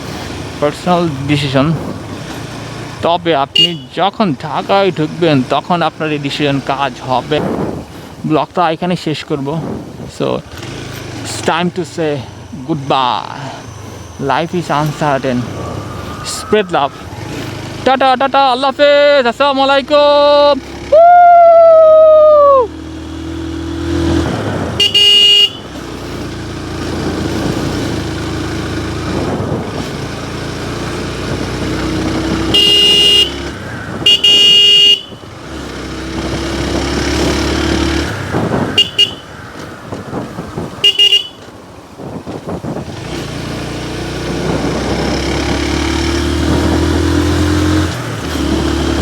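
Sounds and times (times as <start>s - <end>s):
vehicle horn honks: 3.5s - 4.0s, 24.8s - 25.8s, 32.5s - 35.3s, 38.7s - 39.4s, 40.8s - 41.5s
motorcycle engine running: 22.4s - 49.0s.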